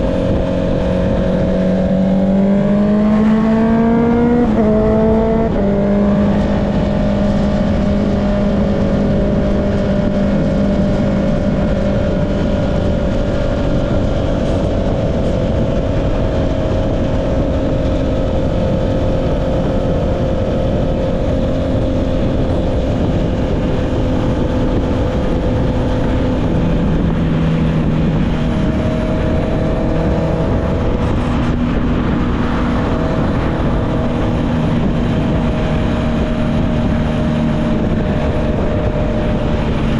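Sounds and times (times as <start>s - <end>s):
motorcycle engine running: 0.0s - 39.9s
wind rush: 0.0s - 39.9s.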